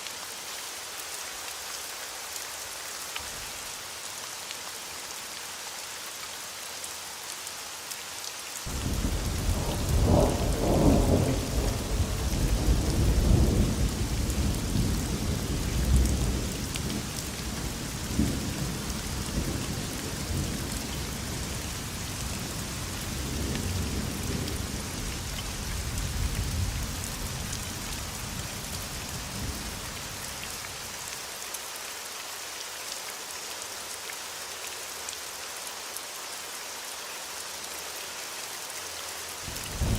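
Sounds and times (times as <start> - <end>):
rain hissing: 0.0 - 39.9
thunder rumbling: 8.7 - 17.0, 39.5 - 39.9.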